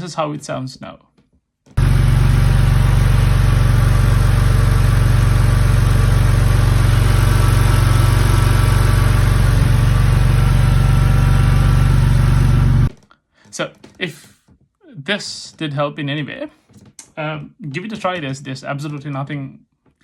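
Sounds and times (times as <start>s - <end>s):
car engine idling: 1.8s - 12.9s.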